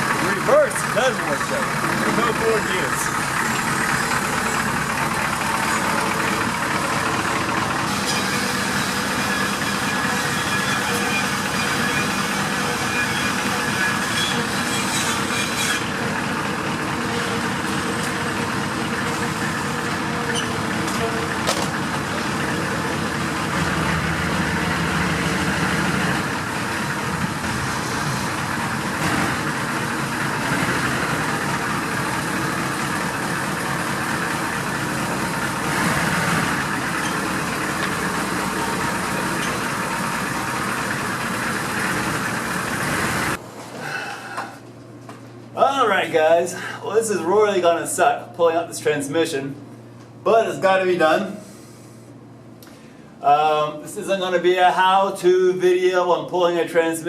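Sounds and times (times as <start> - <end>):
engine idling: 0.0 - 43.4.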